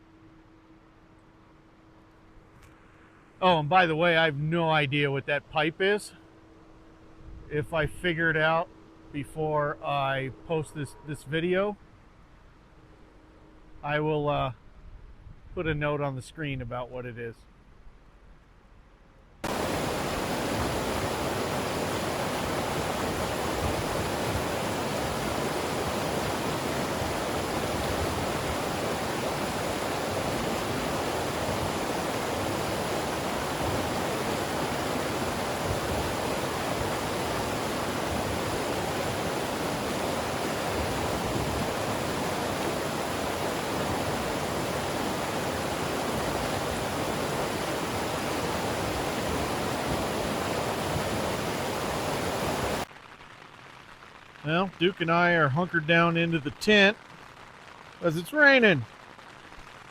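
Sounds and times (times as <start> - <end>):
rush of running water: 19.4 - 52.9.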